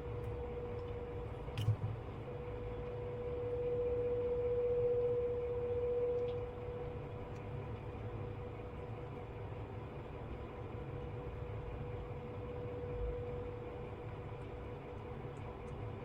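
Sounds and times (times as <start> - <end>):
steady hum with held tone: 0.0 - 16.0.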